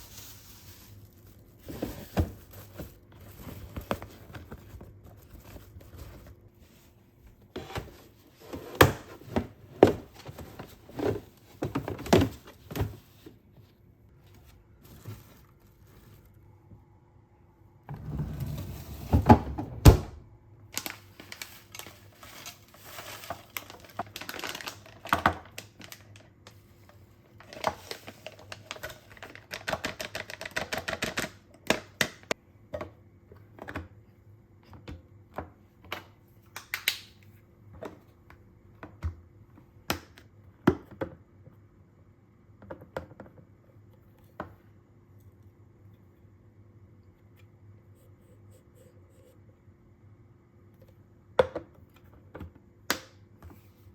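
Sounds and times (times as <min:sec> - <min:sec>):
packaging rustling: 0:00.0 - 0:06.1, 0:20.8 - 0:26.3.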